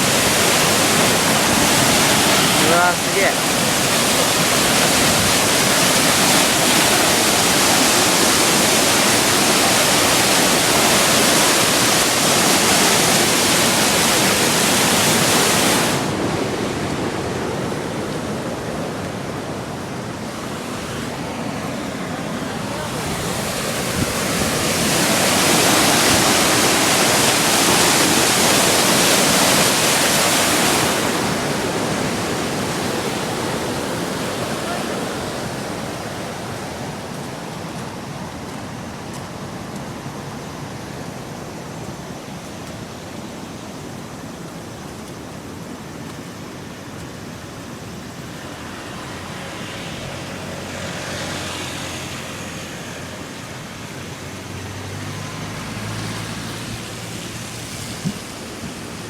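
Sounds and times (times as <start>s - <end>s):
rushing river: 0.0s - 59.0s.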